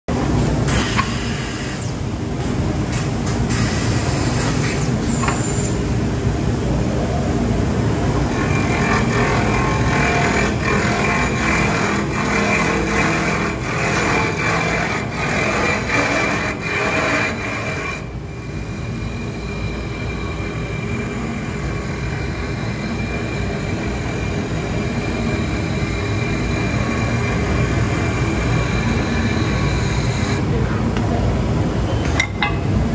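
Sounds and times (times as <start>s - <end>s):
wood lathe mechanical drone: 8.3s - 30.4s.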